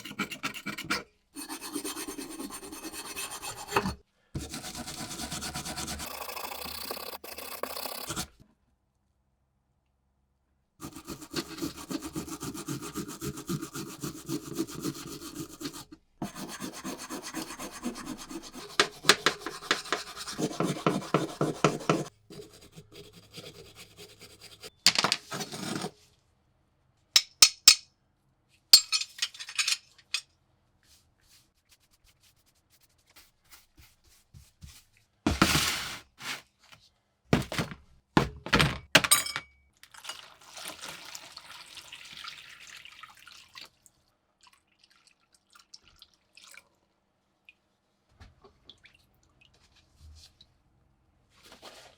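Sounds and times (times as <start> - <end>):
scraping rust on metal tool: 0.0 - 8.4, 10.8 - 26.0.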